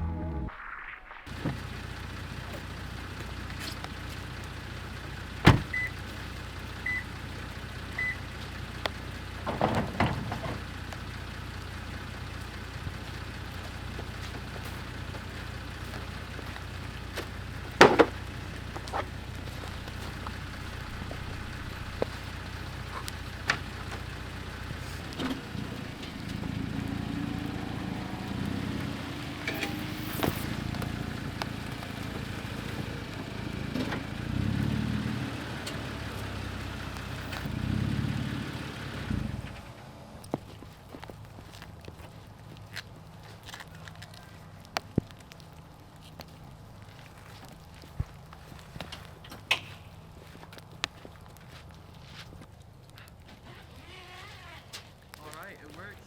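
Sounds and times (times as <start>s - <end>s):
steady low hum: 0.0s - 10.6s, 11.2s - 34.4s
rough low rumble: 0.0s - 36.3s
knocks and clunks: 5.4s - 6.0s, 8.8s - 11.1s, 17.2s - 34.8s
short electronic beeps: 8.0s - 8.2s.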